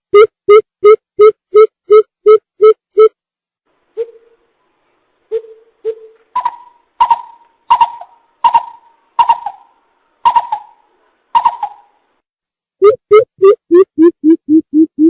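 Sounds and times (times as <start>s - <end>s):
coucal hooting call: 5.3s - 12.0s.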